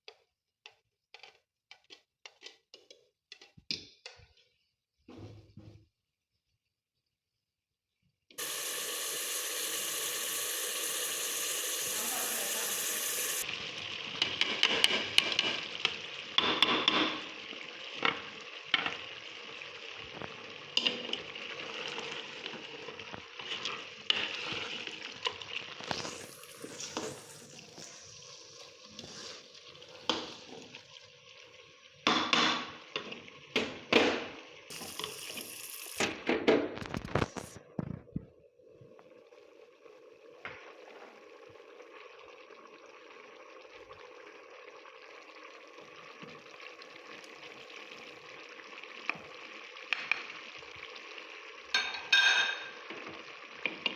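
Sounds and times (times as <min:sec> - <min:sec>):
food sizzling in hot oil: 0:08.4 - 0:37.6, 0:40.6 - 0:53.9.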